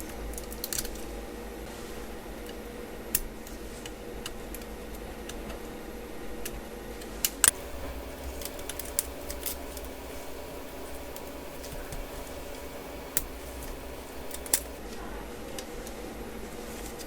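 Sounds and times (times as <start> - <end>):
small clicks and taps on laptop: 7.5 - 14.8.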